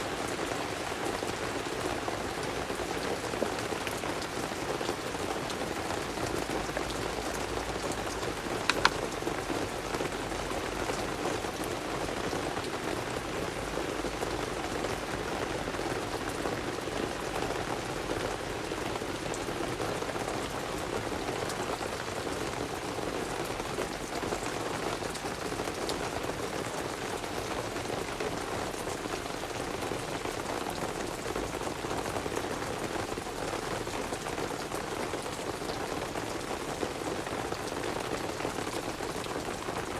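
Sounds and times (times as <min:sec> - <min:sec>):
steady rain falling: 0:00.0 - 0:39.9
sharp click: 0:08.7 - 0:09.0.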